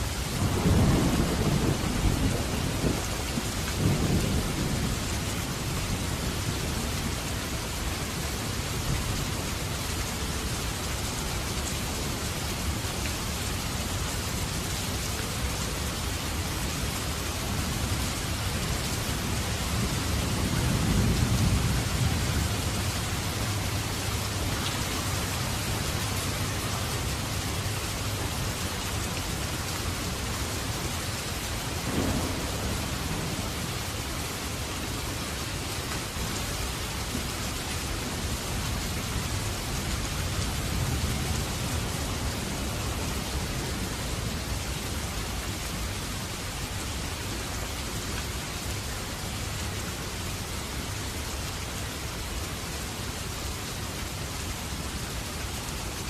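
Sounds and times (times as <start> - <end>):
heavy rain hissing: 0.0 - 56.0
thunder rumbling: 0.4 - 6.3, 31.8 - 35.4.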